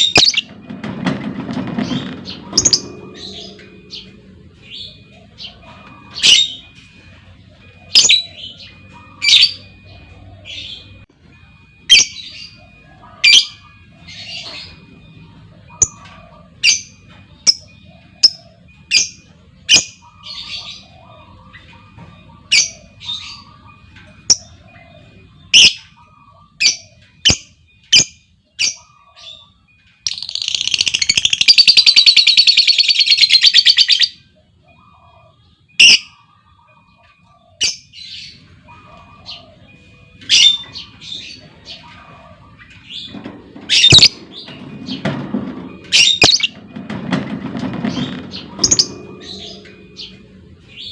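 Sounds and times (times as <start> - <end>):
lovebird chattering trill: 30.1 - 34.1.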